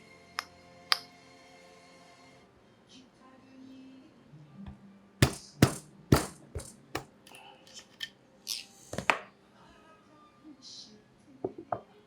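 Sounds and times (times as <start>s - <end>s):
sharp knocks on engine parts: 5.2s - 7.2s.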